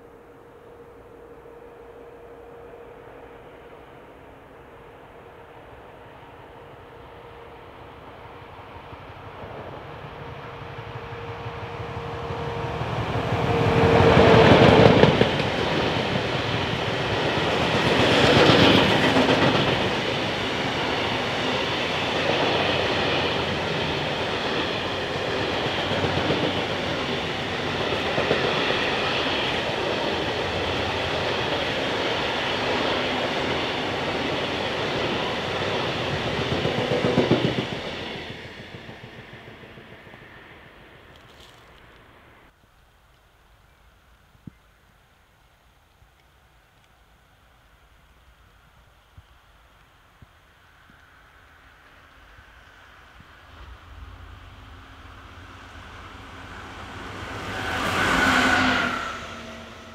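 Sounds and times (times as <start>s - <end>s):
locomotive passing: 4.9s - 42.5s, 50.8s - 59.9s.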